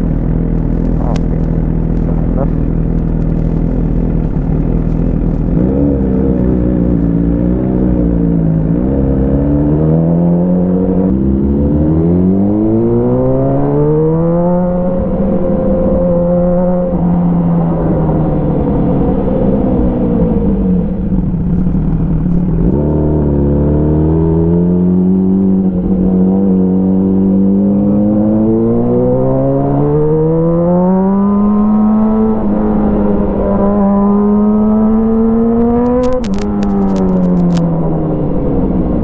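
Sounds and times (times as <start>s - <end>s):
exhaust crackles: 0.0s - 11.1s, 18.2s - 26.2s, 35.8s - 37.7s
motorcycle accelerating: 0.0s - 39.0s.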